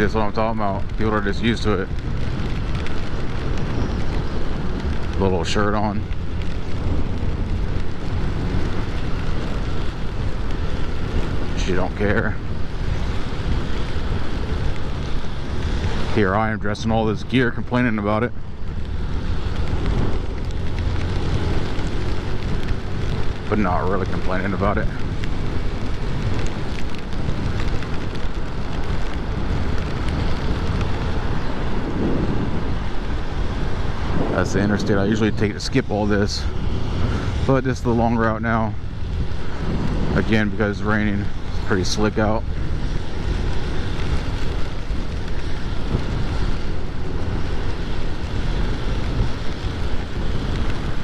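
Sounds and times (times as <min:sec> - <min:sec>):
tyres on wet road: 0:00.0 - 0:51.0
wind noise on microphone: 0:00.0 - 0:51.0.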